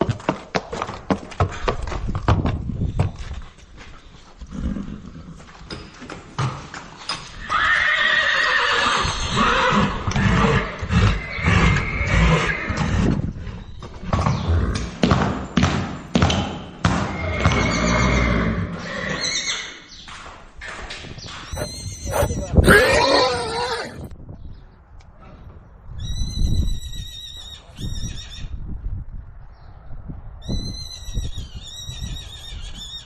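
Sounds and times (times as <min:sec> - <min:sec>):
hooves clopping: 0:00.0 - 0:07.4, 0:21.6 - 0:23.2
horses whinnying: 0:07.4 - 0:13.1, 0:17.1 - 0:19.8, 0:21.6 - 0:24.1.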